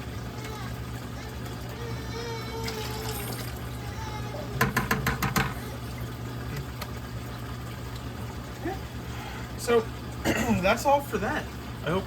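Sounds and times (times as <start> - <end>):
low pump hum: 0.0 - 12.0
water running: 0.0 - 12.0.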